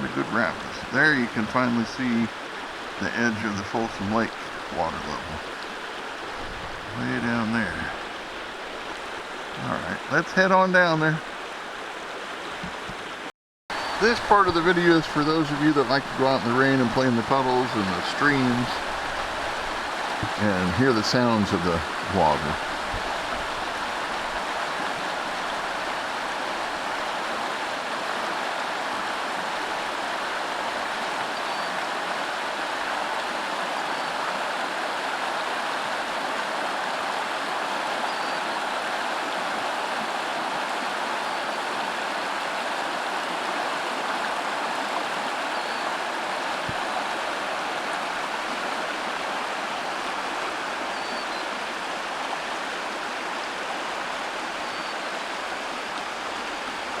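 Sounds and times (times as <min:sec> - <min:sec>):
creek rushing over rapids: 0:00.0 - 0:57.0.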